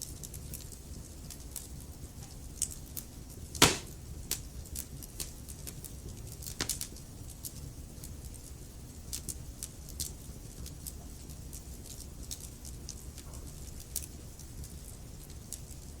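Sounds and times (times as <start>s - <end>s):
wood fire crackling: 2.5s - 12.2s.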